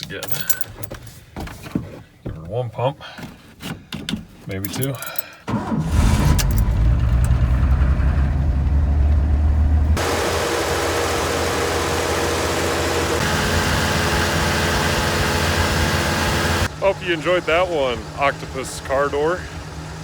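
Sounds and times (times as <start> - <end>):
truck engine idling: 5.6 - 20.0.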